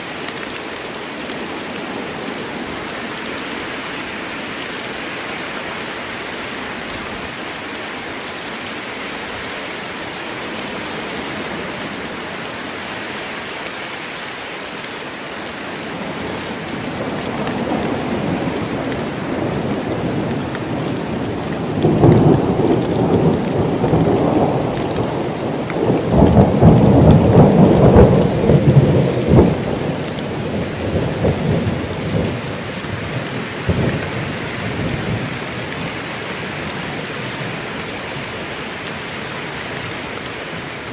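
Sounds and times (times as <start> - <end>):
heavy rain: 0.0 - 40.9
rolling thunder: 16.8 - 35.9.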